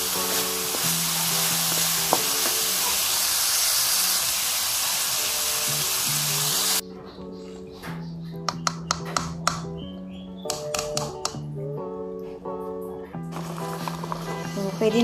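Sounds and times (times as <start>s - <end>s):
food sizzling in a wok: 0.0s - 6.8s
background music: 0.0s - 15.0s.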